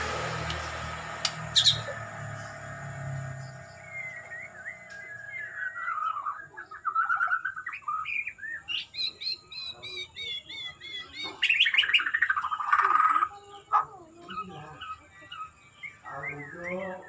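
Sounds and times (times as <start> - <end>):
faint high whine: 0.0 - 6.8
songbird singing: 0.0 - 17.0.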